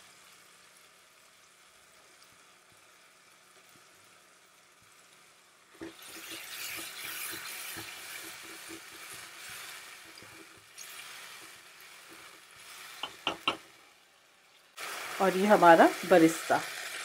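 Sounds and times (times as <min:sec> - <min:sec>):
tomato puree sizzling in pan: 0:00.0 - 0:17.0
spatula stirring in pan: 0:05.8 - 0:13.7.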